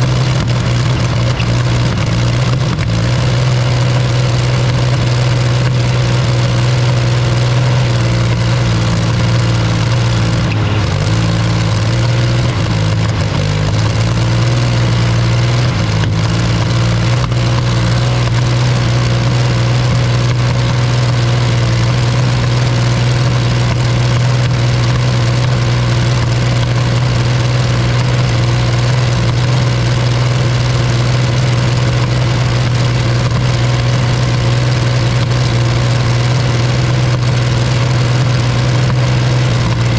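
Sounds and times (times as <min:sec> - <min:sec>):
tank engine idling: 0:15.9 - 0:21.1.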